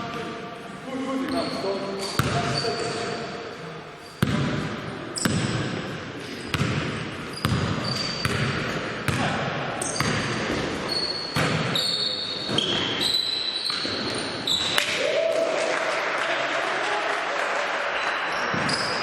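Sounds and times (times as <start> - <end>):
sneaker squeaks: 1.2 - 4.5, 5.1 - 8.8, 9.8 - 14.9, 18.4 - 19.0
basketball bouncing on court: 1.3 - 3.0, 4.2 - 14.9.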